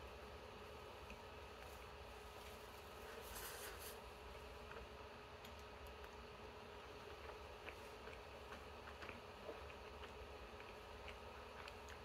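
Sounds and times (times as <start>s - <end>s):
low room hum: 0.0s - 12.0s
wet mouth clicks chewing: 6.8s - 12.0s.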